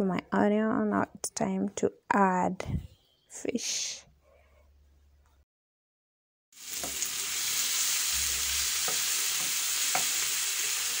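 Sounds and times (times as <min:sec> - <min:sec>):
food sizzling in oil: 0:06.5 - 0:11.0.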